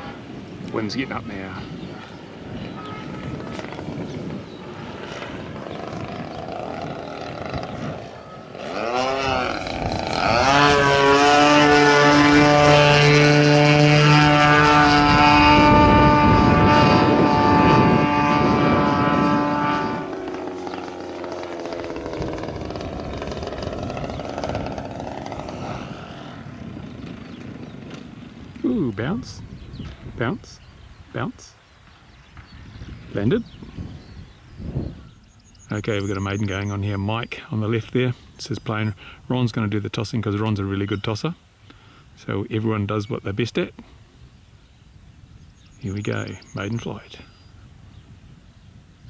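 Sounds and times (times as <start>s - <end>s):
wind noise on microphone: 0.0s - 49.0s
model airplane motor drone: 1.7s - 28.7s.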